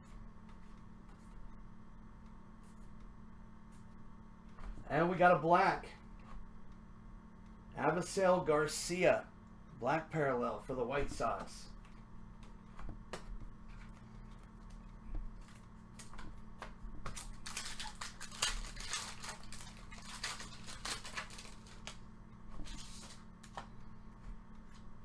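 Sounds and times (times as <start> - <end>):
pack wrapping rustling: 17.1 - 22.0, 22.6 - 23.6
trading cards rustling and sliding: 22.6 - 23.8.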